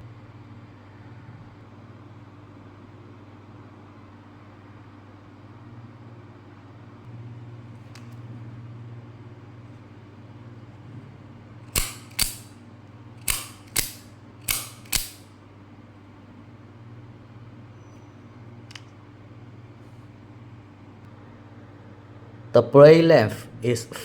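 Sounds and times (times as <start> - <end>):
knife blade snapping: 11.8 - 12.5, 13.2 - 15.2.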